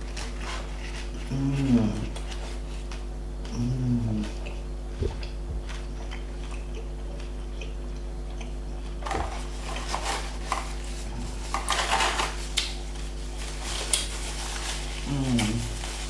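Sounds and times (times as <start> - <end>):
low electrical hum: 0.0 - 16.0
chewing and biting food: 0.1 - 11.6
sharp mouth clicks: 6.0 - 8.6.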